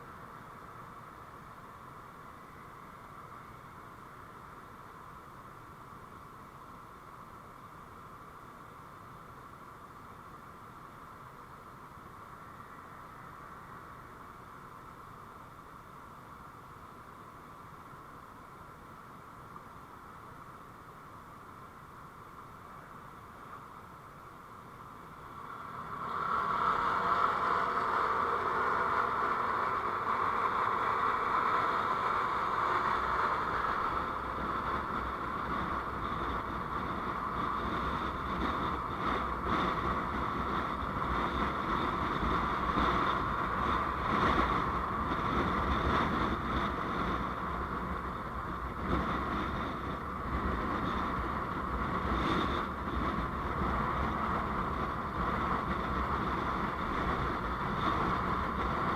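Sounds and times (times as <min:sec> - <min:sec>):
wind noise: 0:17.5 - 0:58.9
vehicle engine: 0:24.8 - 0:58.9.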